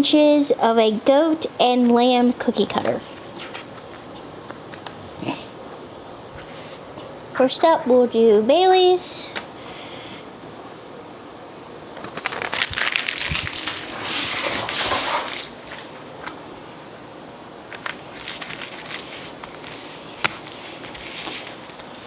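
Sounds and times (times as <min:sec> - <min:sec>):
packing material crinkling: 0:11.8 - 0:16.0, 0:17.7 - 0:22.0.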